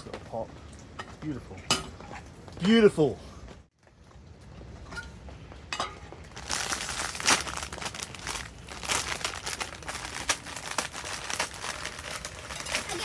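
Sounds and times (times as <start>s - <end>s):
packaging crinkling: 6.3s - 13.0s.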